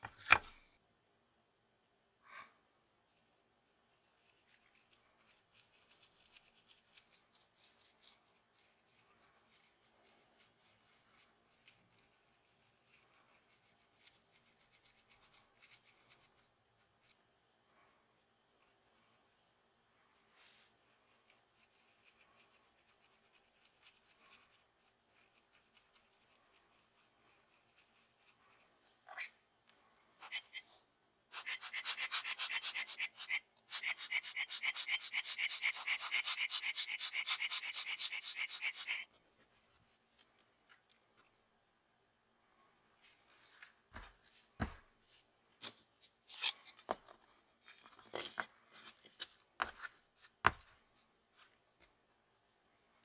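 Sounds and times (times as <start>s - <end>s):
hand tool scraping a hard part: 30.2s - 30.7s, 31.3s - 39.1s.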